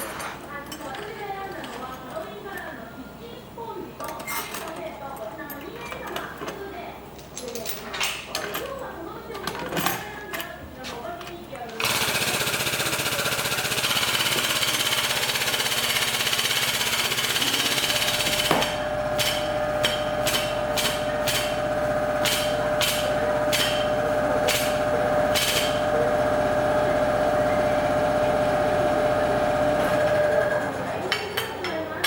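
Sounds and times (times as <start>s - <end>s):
power tool running: 11.8s - 30.8s.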